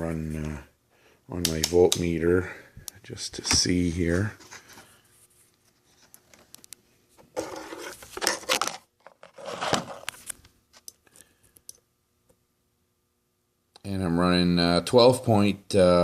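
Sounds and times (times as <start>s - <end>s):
rustling and scraping of leads: 7.4s - 10.3s.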